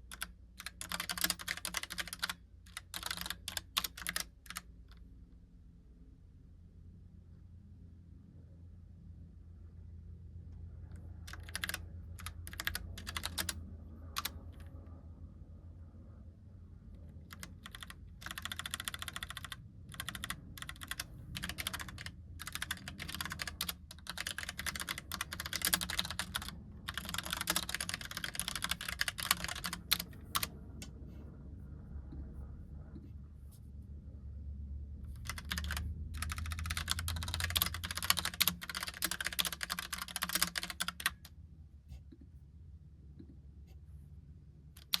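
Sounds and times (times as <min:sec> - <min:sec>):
mechanical keyboard typing: 0:00.0 - 0:04.7, 0:11.2 - 0:14.7, 0:17.2 - 0:30.5, 0:35.1 - 0:41.3, 0:44.8 - 0:45.0.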